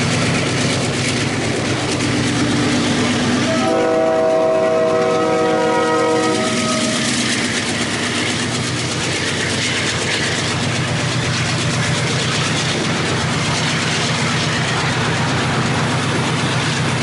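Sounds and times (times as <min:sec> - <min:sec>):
steel wheels rolling on rail: 0:00.0 - 0:17.0
train horn: 0:03.4 - 0:07.2.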